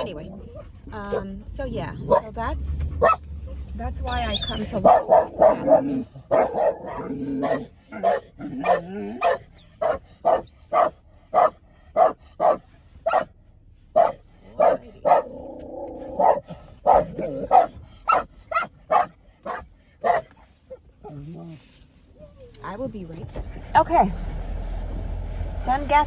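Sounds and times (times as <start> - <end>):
dog barking: 0.5 - 1.4, 2.0 - 2.4, 3.0 - 3.3, 4.6 - 13.3, 13.9 - 15.4, 16.1 - 20.4
dog long held cry: 4.8 - 12.6.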